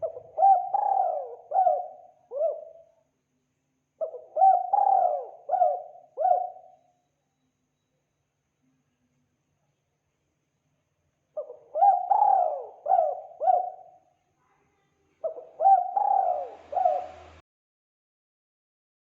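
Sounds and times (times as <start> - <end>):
dove cooing: 0.0 - 2.9, 4.0 - 6.8, 11.4 - 14.0, 15.2 - 17.4.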